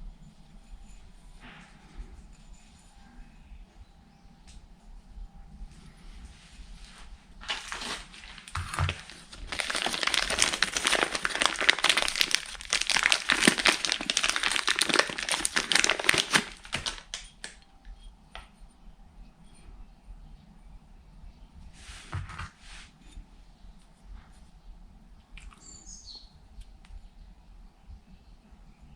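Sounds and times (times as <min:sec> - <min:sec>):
material crinkling and crumpling: 0:05.7 - 0:17.7.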